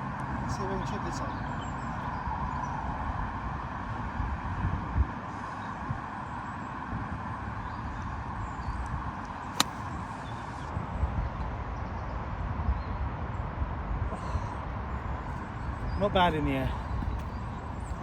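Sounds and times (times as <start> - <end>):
wind buffeting microphone: 9.0 - 18.0
golf club striking ball: 9.5 - 10.0.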